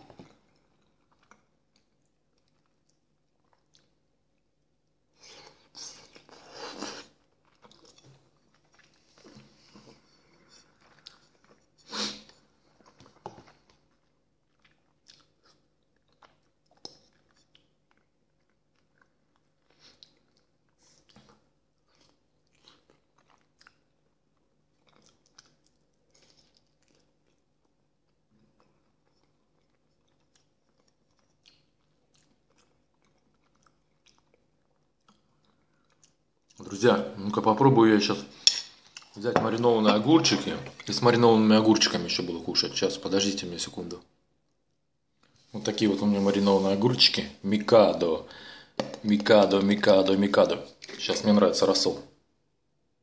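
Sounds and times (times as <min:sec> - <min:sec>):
chewing and wet lip smacks: 0:12.8 - 0:36.6.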